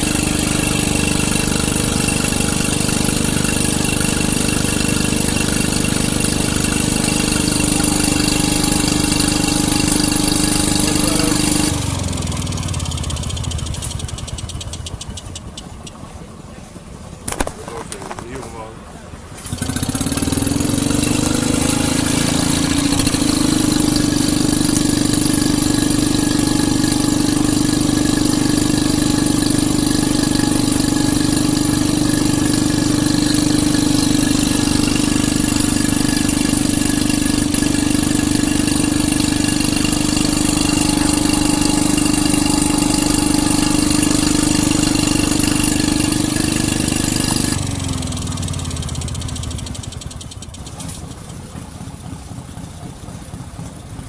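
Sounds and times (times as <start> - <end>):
engine humming: 0.0 - 54.0.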